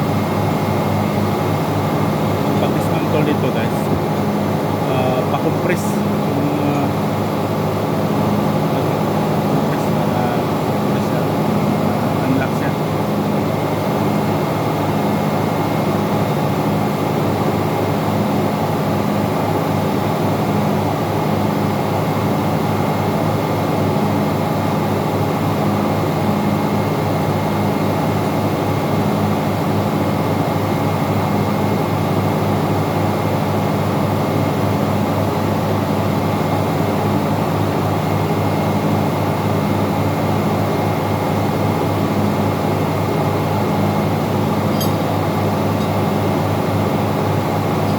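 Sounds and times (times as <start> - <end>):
machinery drone: 0.0 - 18.2, 33.5 - 47.9.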